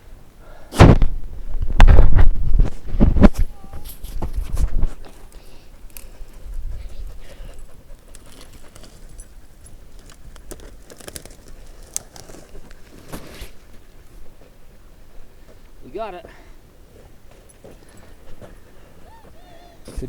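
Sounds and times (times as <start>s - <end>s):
scrambling up rocky slope: 1.8s - 14.9s.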